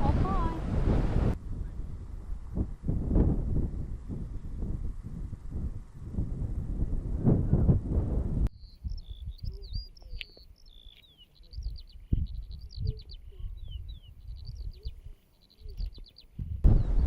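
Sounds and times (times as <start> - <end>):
wind rumbling on microphone: 0.0 - 17.0
songbird singing: 8.5 - 17.0.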